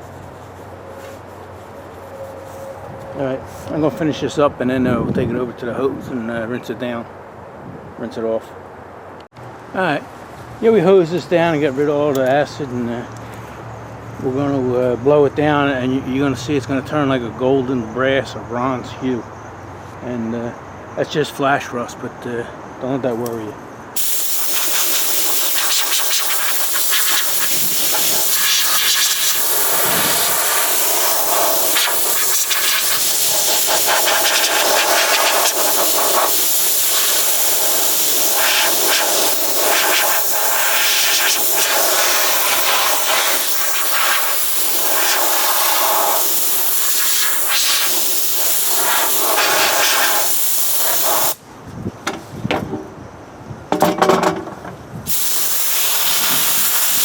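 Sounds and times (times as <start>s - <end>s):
air blow gun hissing: 24.0s - 51.4s, 55.1s - 57.0s.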